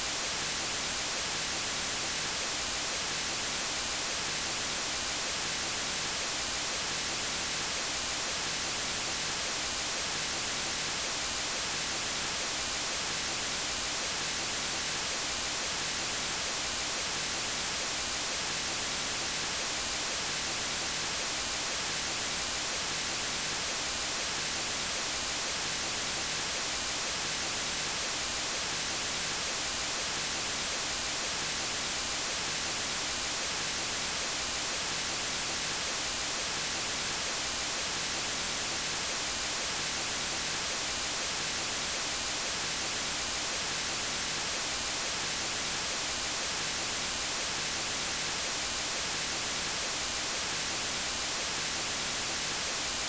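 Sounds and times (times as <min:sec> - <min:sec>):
white noise hiss: 0:00.0 - 0:53.0.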